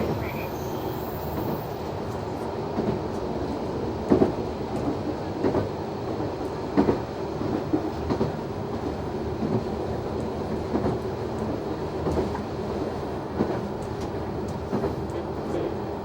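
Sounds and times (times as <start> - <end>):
diesel railcar engine running: 0.0 - 3.8.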